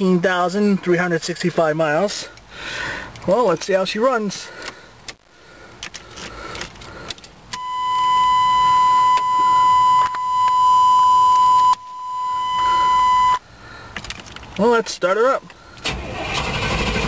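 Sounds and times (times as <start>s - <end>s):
dashboard warning beep: 7.6s - 13.4s.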